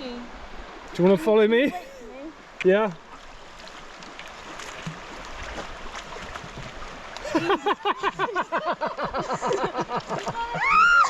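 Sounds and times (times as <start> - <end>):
water sloshing and splashing: 2.3 - 11.0.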